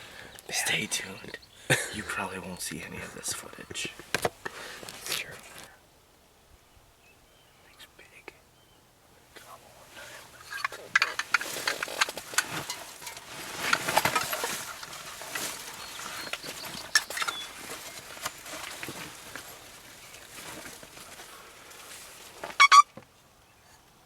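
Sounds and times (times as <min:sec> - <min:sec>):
light rustling and clicks: 0:10.4 - 0:22.6
turkey gobble: 0:22.6 - 0:22.8.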